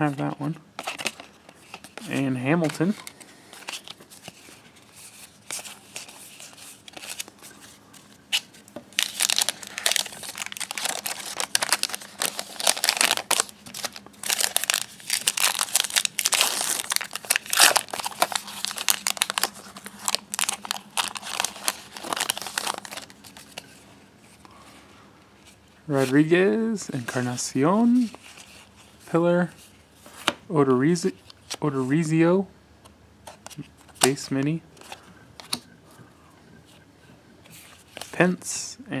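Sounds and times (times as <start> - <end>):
wrapper tearing and crinkling: 8.3 - 23.7.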